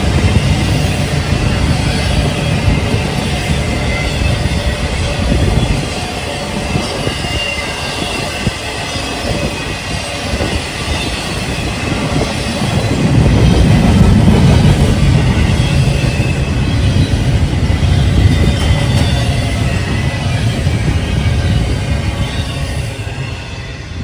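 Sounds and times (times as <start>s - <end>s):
train rolling on rails: 0.0s - 24.0s
faint wheel squeal: 15.3s - 24.0s.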